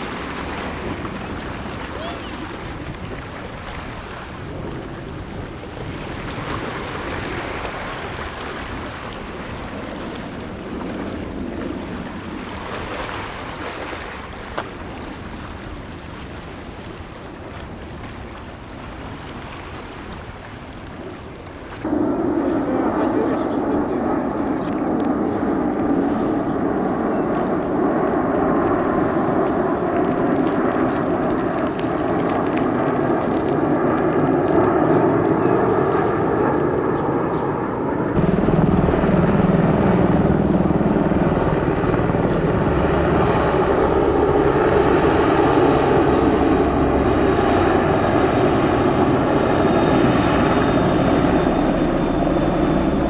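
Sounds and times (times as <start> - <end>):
military jet flying over: 0.0 - 16.7, 21.8 - 53.0.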